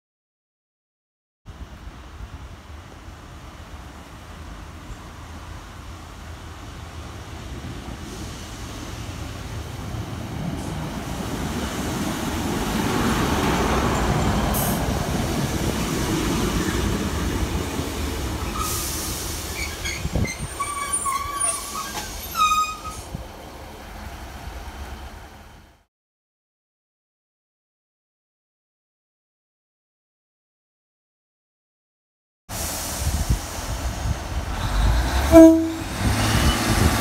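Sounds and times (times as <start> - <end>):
diesel train engine and wheels rumbling: 1.5 - 25.9, 32.5 - 37.0
air hiss: 18.4 - 20.3, 32.5 - 35.1
brakes squealing: 18.4 - 23.2, 34.5 - 37.0.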